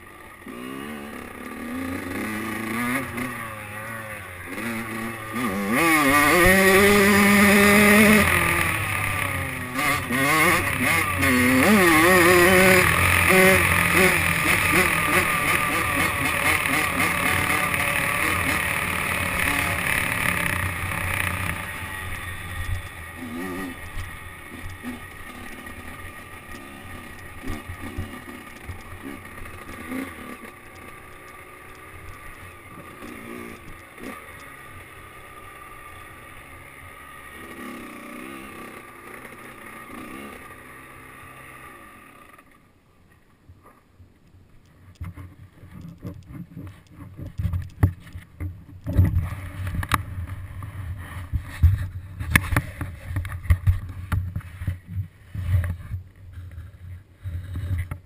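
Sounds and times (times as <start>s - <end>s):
dirt bike engine revving: 0.0s - 42.6s.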